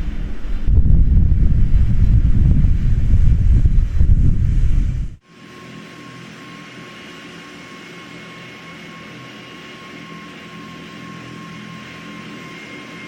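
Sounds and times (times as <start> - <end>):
distant jet engines droning: 0.0 - 13.0.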